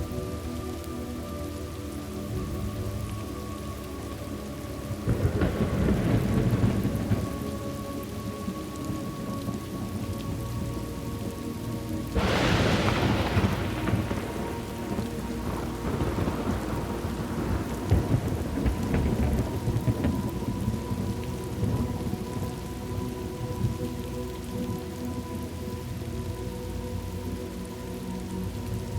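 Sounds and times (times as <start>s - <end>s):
steady rain: 0.0s - 28.9s
thunder crack rolling: 5.1s - 7.5s, 12.2s - 22.0s.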